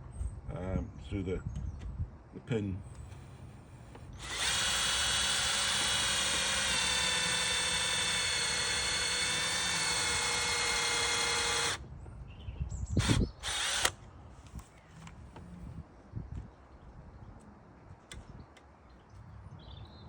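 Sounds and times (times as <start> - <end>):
power drill motor whine: 2.9 - 11.8, 13.0 - 14.0.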